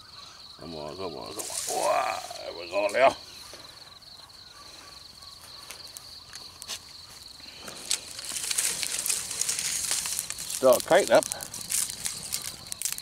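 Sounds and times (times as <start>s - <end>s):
insect trilling: 0.0s - 13.0s
rustling and crackling: 1.2s - 3.1s, 7.5s - 13.0s.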